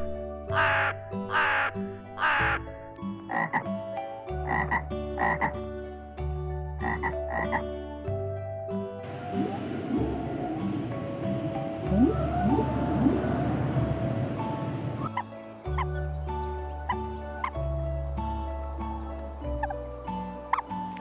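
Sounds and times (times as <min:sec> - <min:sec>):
background music: 0:00.0 - 0:21.0
harsh animal calls: 0:00.5 - 0:02.6.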